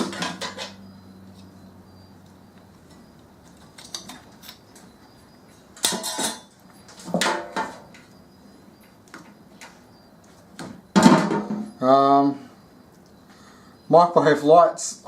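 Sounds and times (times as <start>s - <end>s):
small metal parts clattering: 5.8s - 8.1s.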